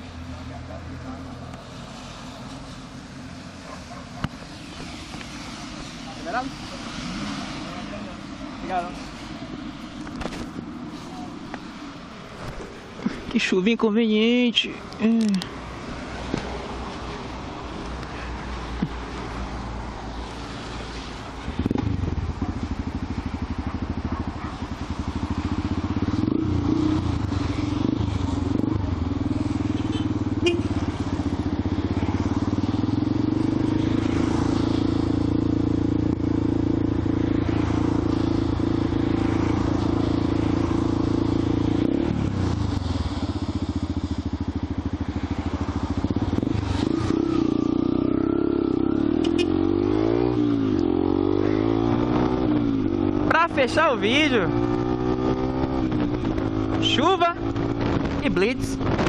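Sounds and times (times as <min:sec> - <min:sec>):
motorcycle engine running: 0:21.5 - 0:59.0.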